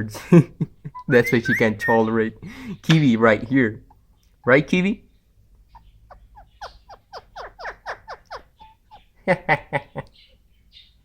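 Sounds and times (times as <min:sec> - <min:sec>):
parakeet chattering: 0:01.0 - 0:09.2.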